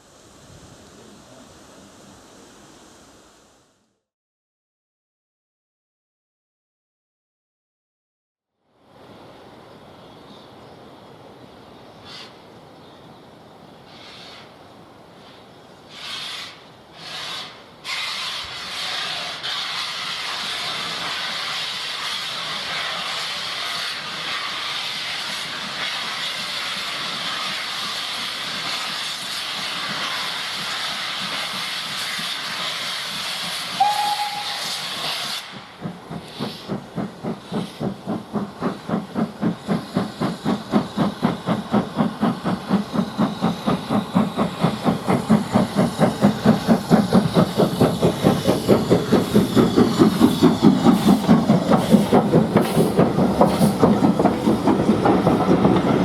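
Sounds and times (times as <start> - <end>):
steam hissing: 0.0 - 3.8, 13.8 - 56.0
locomotive exhaust chuffs: 15.9 - 56.0
steam whistle blast: 33.8 - 35.4.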